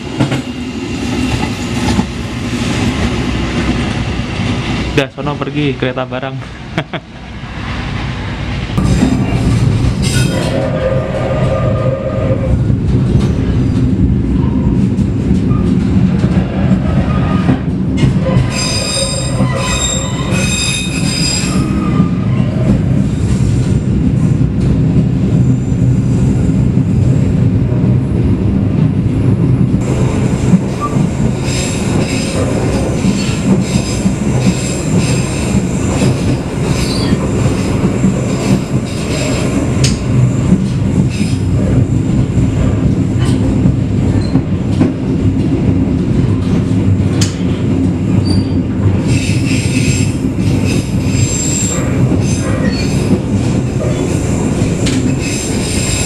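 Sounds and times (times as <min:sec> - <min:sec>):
train rumbling on rails: 0:00.0 - 0:56.0
wheels squealing on rails: 0:18.2 - 0:22.7, 0:36.8 - 0:37.3, 0:48.2 - 0:53.2, 0:54.8 - 0:56.0.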